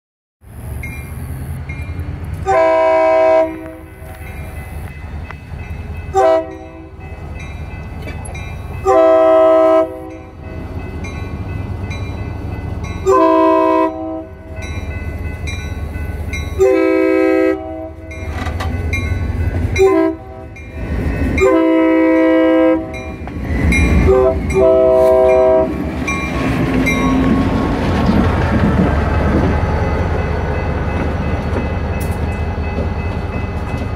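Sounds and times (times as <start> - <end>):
train rolling noise: 0.4 - 33.9
locomotive engine rumble: 0.5 - 33.9
locomotive air horn blasts: 2.4 - 4.2, 6.1 - 7.0, 8.8 - 10.4, 13.0 - 14.5, 16.6 - 18.1, 19.8 - 20.6, 21.4 - 23.0, 23.9 - 25.8.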